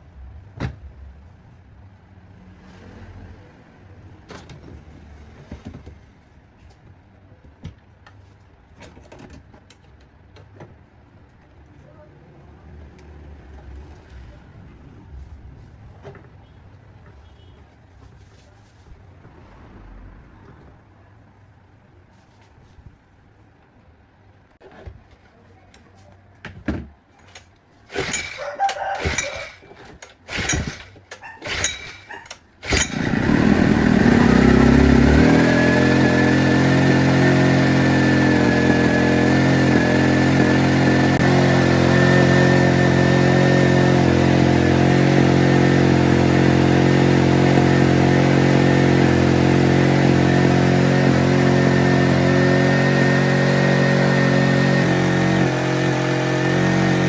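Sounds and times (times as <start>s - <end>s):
starter cord pulls: 27.2s - 41.5s
generator engine running: 27.9s - 57.0s.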